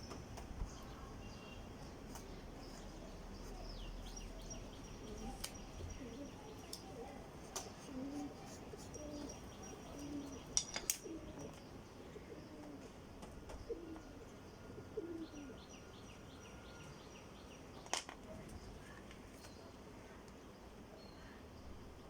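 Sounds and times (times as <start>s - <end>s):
birds chirping: 0.0s - 12.8s
dove cooing: 1.9s - 12.9s, 13.6s - 14.2s, 14.8s - 15.6s.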